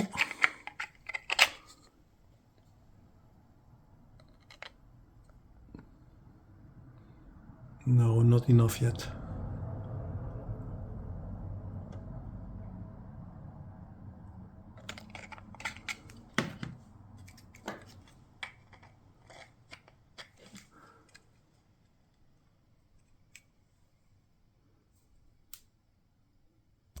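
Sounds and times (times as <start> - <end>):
plastic parts clicking: 0.0 - 1.9, 4.2 - 4.8, 14.8 - 21.3.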